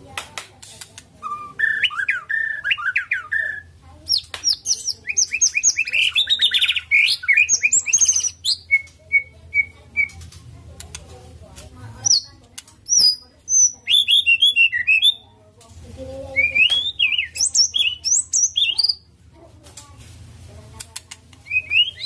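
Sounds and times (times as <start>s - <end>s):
bird singing varied song: 1.2s - 10.4s, 12.0s - 15.4s, 16.2s - 19.1s, 21.3s - 22.0s
faint clicks: 10.1s - 11.7s.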